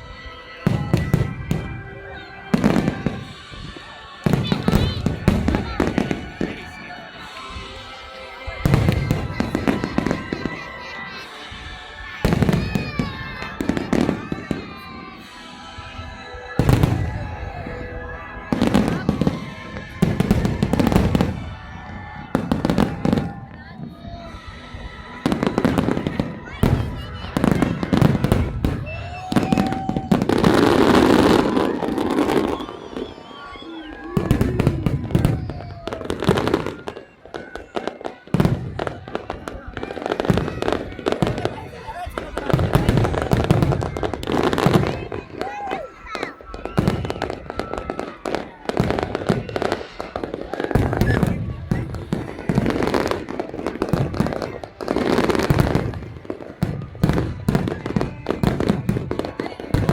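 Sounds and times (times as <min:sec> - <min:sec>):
fireworks crackling: 0:00.0 - 0:59.9
fireworks bangs: 0:00.1 - 0:59.9
low firework booms: 0:34.0 - 0:37.7.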